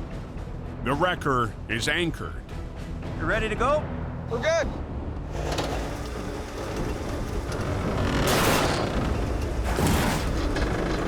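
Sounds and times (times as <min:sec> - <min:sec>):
diesel engine under load: 0:05.3 - 0:11.0.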